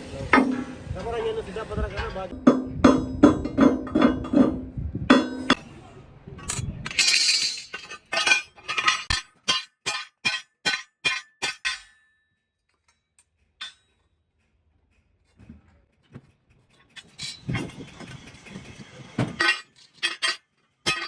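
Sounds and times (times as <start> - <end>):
hammer striking metal: 2.3 - 5.6, 8.3 - 12.2.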